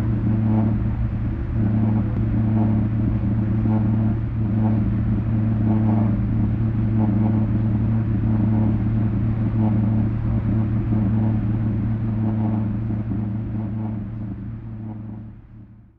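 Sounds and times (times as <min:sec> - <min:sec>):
loud low drone from subwoofer: 0:00.0 - 0:15.9.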